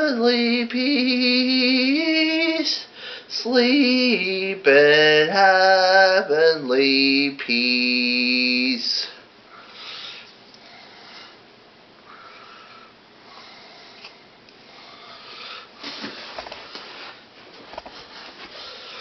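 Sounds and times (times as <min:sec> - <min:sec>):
quiet breathing: 0:02.8 - 0:03.3, 0:08.9 - 0:17.3, 0:17.9 - 0:19.0.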